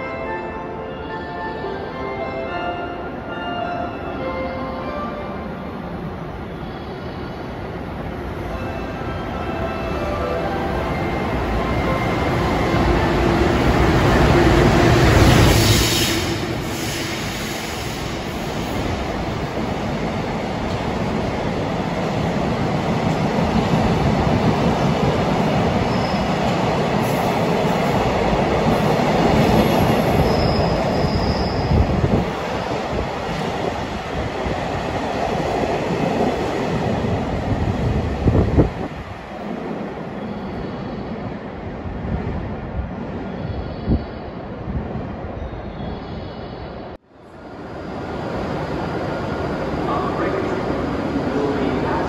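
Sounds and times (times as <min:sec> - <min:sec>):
high wheel squeal: 0:30.2 - 0:31.8.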